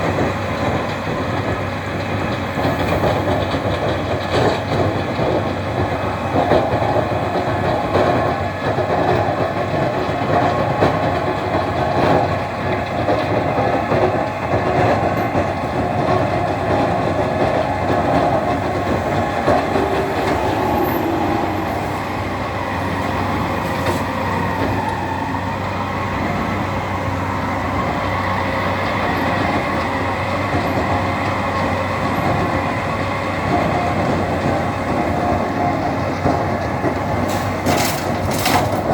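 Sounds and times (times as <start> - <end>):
loader engine running: 0.0 - 38.9
clattering rattle: 37.3 - 38.9.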